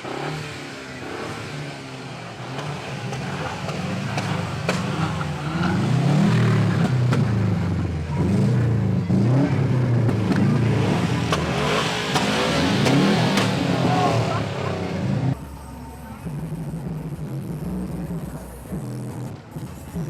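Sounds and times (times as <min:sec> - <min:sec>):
car engine revving: 0:00.0 - 0:15.5.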